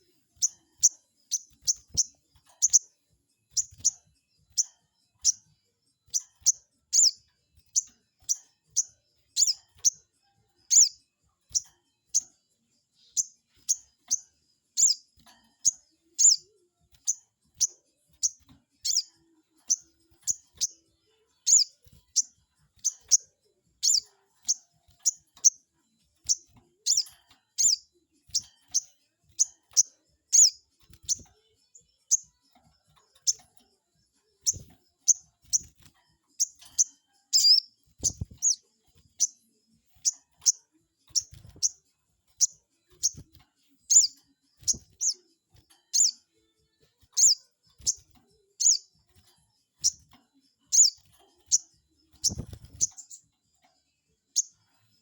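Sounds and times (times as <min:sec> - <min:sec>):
bird chirping sharply: 0:06.1 - 0:10.0, 0:10.7 - 0:12.3, 0:14.8 - 0:19.1, 0:21.4 - 0:23.2, 0:23.8 - 0:25.6, 0:26.2 - 0:31.3, 0:36.4 - 0:38.6, 0:42.4 - 0:45.3, 0:45.9 - 0:46.2, 0:47.1 - 0:48.9, 0:50.7 - 0:53.2.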